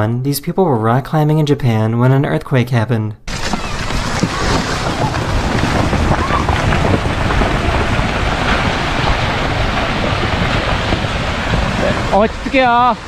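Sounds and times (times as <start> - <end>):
deep low rumble: 3.3 - 13.0
wind buffeting microphone: 3.3 - 13.0.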